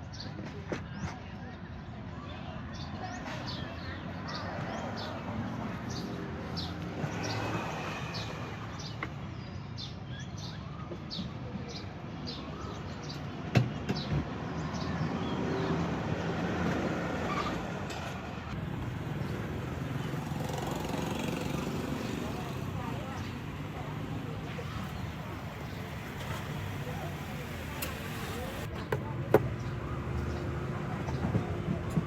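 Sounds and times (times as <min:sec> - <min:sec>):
traffic hum: 0:10.6 - 0:32.0.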